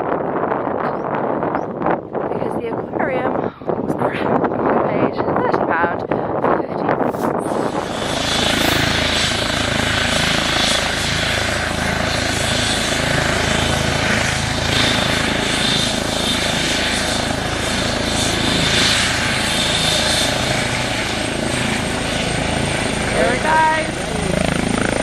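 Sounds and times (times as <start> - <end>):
hovercraft engine drone: 6.4 - 25.0.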